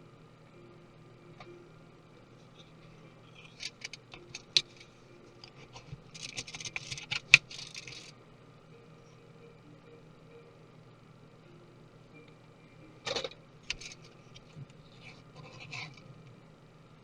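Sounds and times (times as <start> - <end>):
busy scraping: 13.7 - 16.1.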